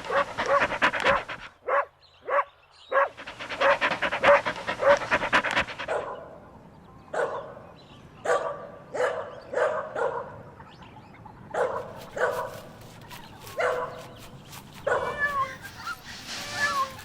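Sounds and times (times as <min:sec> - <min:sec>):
puppies barking: 0:03.0 - 0:06.1, 0:11.6 - 0:17.0
puppies whimpering and yelping: 0:14.6 - 0:17.0.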